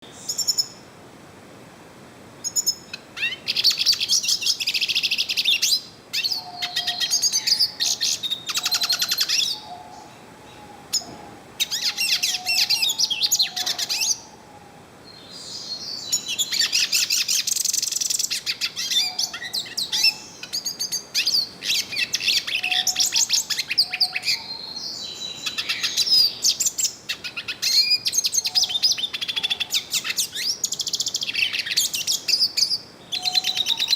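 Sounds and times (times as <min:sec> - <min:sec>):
bird singing fast twittering: 0:02.4 - 0:14.3, 0:15.1 - 0:33.9.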